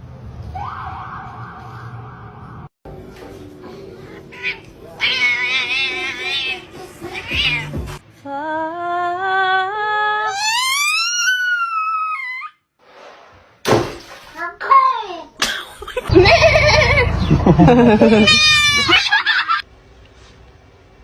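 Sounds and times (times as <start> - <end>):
cat meowing and yowling: 4.3 - 7.9, 10.3 - 12.5, 18.0 - 19.1.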